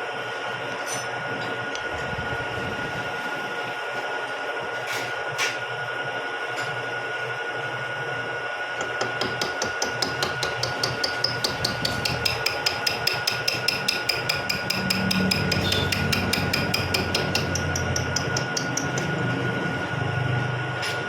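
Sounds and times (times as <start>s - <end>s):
milling machine humming: 0.0s - 21.0s
cutter ticking on gear blank: 8.8s - 19.4s.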